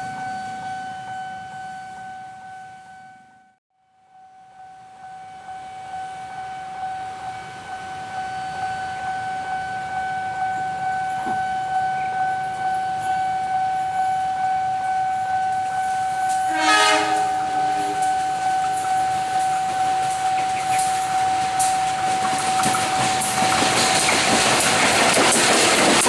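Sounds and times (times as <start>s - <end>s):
train horn blast: 5.1s - 23.4s
continuous high tone: 5.4s - 25.1s
train rumble: 6.6s - 26.0s.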